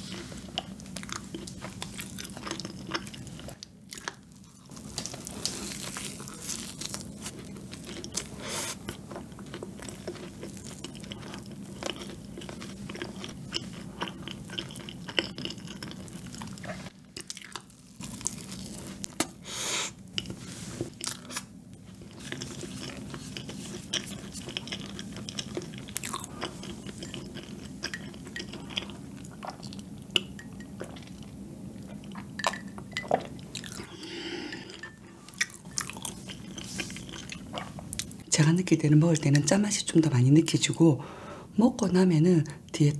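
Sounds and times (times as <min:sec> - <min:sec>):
chewing and biting donut: 0:00.1 - 0:19.4, 0:21.0 - 0:29.8, 0:33.1 - 0:33.9.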